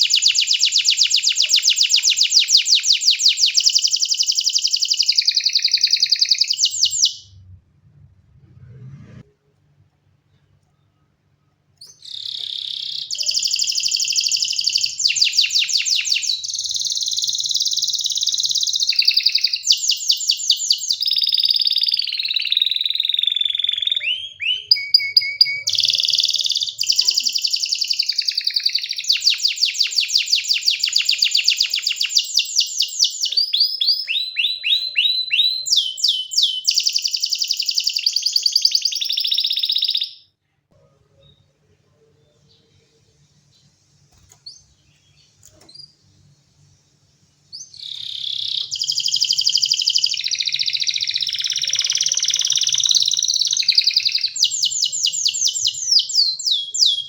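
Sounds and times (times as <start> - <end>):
canary singing trills: 0.0 - 7.4, 11.8 - 40.3, 47.5 - 57.0.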